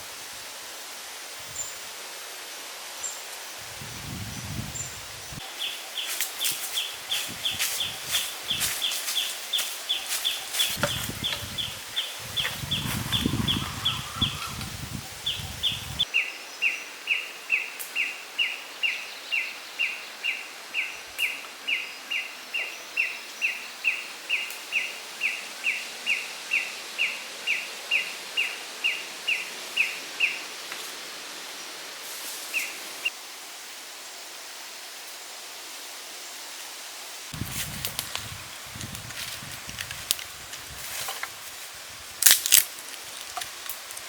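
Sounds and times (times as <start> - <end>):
background hiss: 0.0 - 44.0
bird downward-sweeping call: 11.2 - 14.7.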